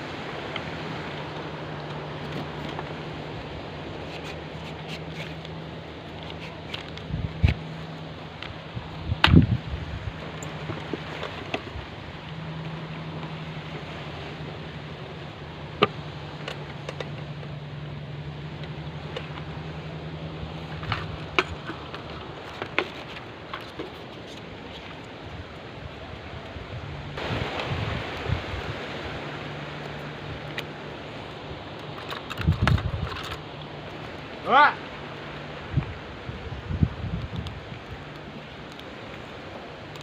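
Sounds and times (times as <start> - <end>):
fishing gear clicks and knocks: 1.3 - 9.6, 14.9 - 17.8, 18.5 - 25.2, 29.8 - 34.3, 37.2 - 40.0
wind noise: 6.2 - 12.2, 20.4 - 33.9, 35.4 - 38.4.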